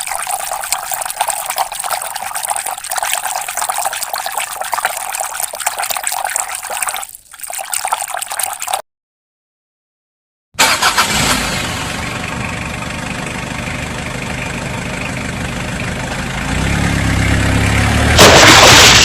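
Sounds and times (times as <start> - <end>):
water running and splashing: 0.0 - 8.8.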